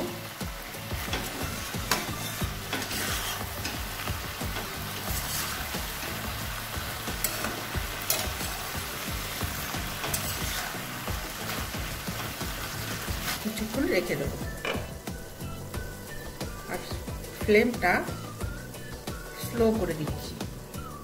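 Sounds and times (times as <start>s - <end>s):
food sizzling in a pan: 0.0s - 21.0s
utensil scraping and knocking pan: 1.0s - 3.8s, 7.2s - 8.6s, 9.6s - 10.8s.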